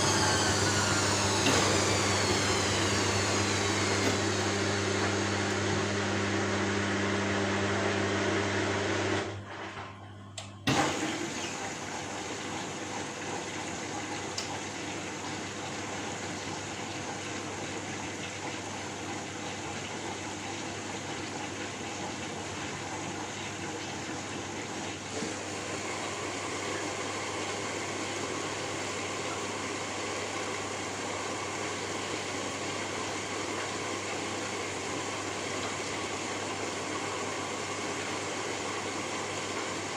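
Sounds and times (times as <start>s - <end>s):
motor hum: 0.0s - 13.2s.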